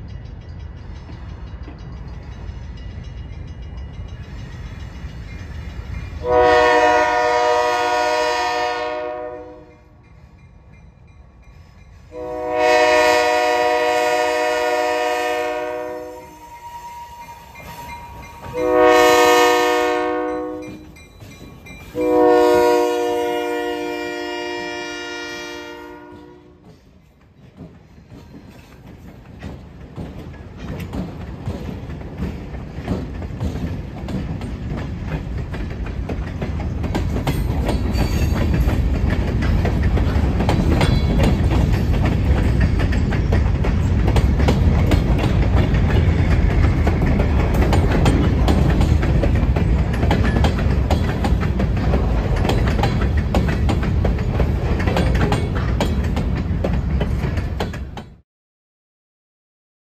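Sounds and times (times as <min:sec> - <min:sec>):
freight train rolling past: 0:00.0 - 0:58.2
steel wheels clacking over rail joints: 0:26.6 - 0:58.2.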